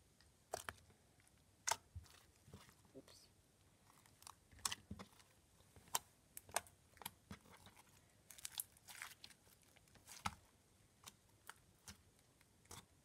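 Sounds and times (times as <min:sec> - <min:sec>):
slime squished by hand: 0:03.8 - 0:13.0.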